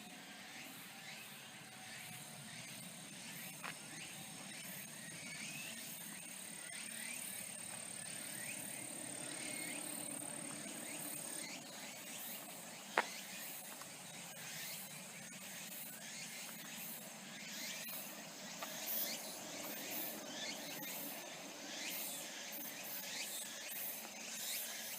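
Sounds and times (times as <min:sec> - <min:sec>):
faint chirps: 0:00.6 - 0:24.9
high insect trill: 0:02.5 - 0:24.9
distant road traffic rumble: 0:07.6 - 0:13.8, 0:17.1 - 0:23.2.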